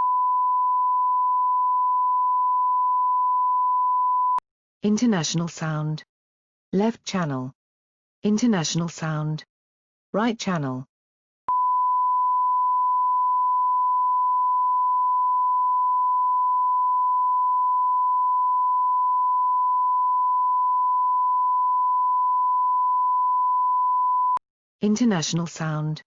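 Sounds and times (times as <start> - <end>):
pure test tone: 11.5 - 24.4.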